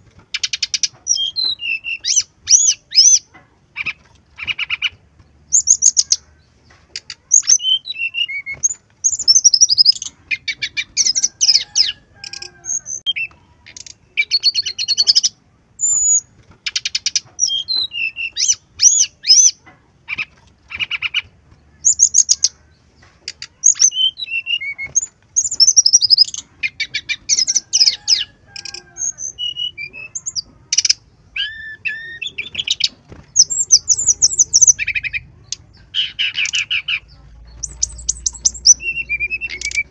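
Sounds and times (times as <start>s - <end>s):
bird singing whistled song: 0.4s - 3.2s, 7.4s - 13.3s, 14.1s - 19.6s, 23.7s - 35.2s, 37.6s - 39.9s.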